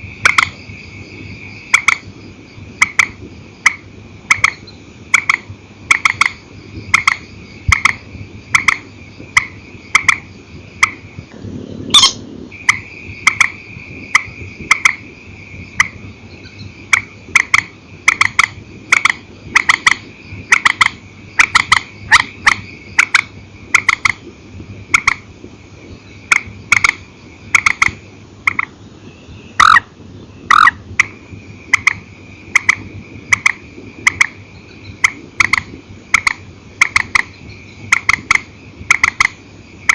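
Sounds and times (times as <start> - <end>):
high-pitched hum: 7.4 - 23.5
swamphen calling: 11.8 - 24.3, 25.9 - 39.9.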